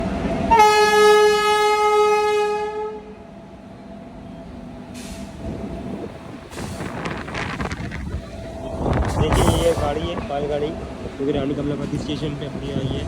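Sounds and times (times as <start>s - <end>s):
locomotive horn blast: 0.5s - 3.2s.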